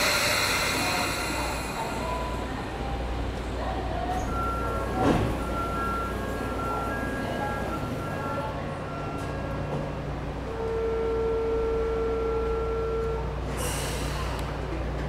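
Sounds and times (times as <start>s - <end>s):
air hiss: 0.0s - 2.1s
electric train humming: 0.0s - 15.0s
buzzer tone: 10.5s - 13.3s.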